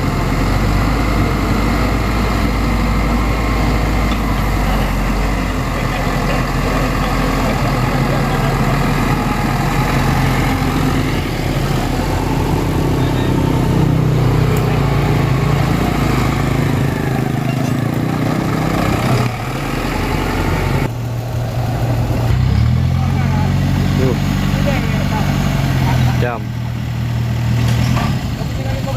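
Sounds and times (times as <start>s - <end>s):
heavy machinery engine running: 0.0s - 28.9s.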